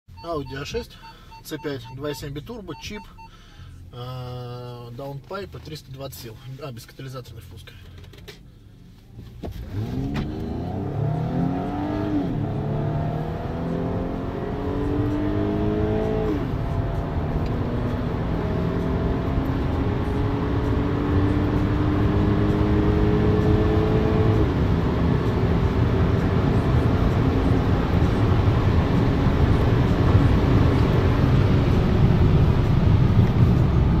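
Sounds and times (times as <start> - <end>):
car engine accelerating: 9.4 - 34.0.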